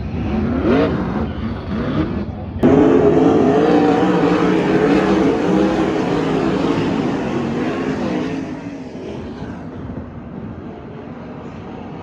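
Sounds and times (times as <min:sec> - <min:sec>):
racing engine passing by: 0:01.7 - 0:10.6
distant engine rumble: 0:02.6 - 0:10.9.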